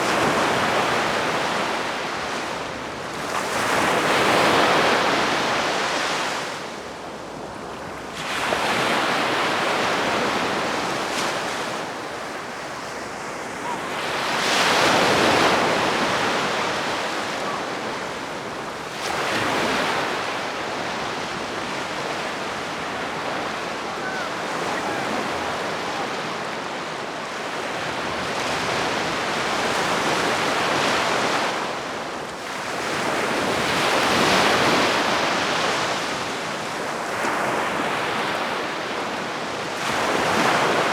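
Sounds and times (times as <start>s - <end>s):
sea waves breaking gently: 8.2s - 31.5s.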